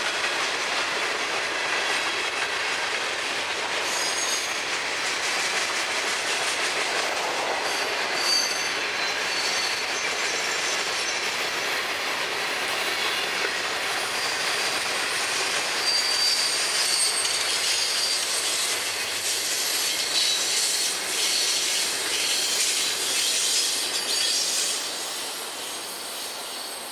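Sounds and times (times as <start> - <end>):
steel wheels rattling on rail: 0.0 - 26.9
thin high wheel squeal: 3.8 - 4.7, 7.6 - 11.3, 13.9 - 26.9.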